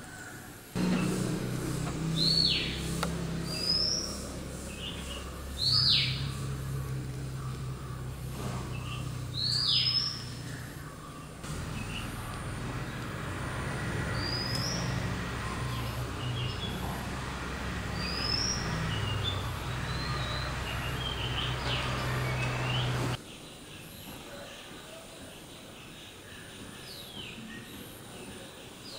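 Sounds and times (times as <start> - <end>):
birds calling: 0.0 - 23.2
low hum: 0.8 - 23.2.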